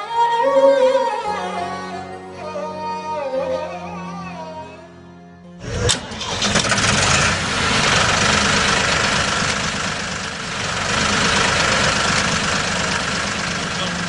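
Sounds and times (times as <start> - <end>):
tractor engine idling: 5.6 - 14.0.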